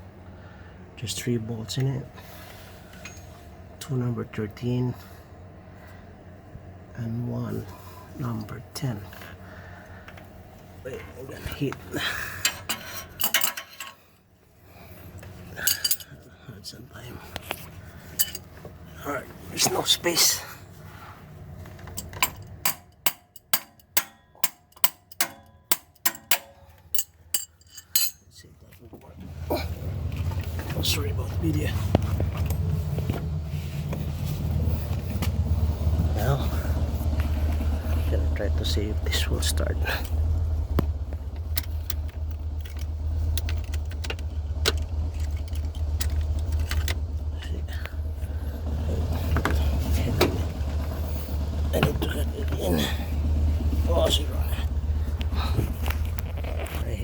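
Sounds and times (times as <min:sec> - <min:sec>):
tool tapping metal: 0:21.9 - 0:28.2
steady low rumble: 0:26.9 - 0:57.0
sharp clicks and knocks: 0:40.1 - 0:47.3
car keys jangling: 0:41.4 - 0:47.1.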